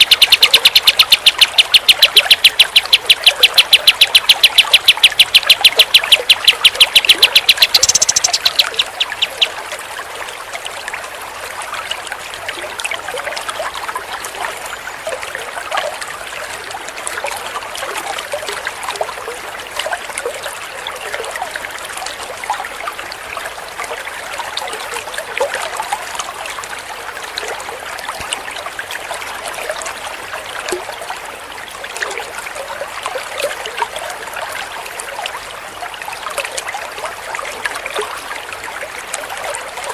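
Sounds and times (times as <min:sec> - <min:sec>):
bird trilling: 0:00.0 - 0:09.6
running water trickling: 0:00.0 - 0:39.9.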